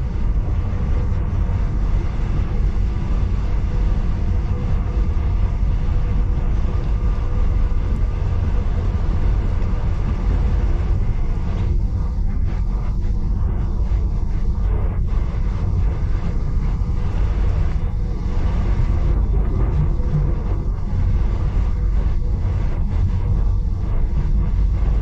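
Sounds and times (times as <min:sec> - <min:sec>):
train rumbling in motion: 0:18.3 - 0:21.1.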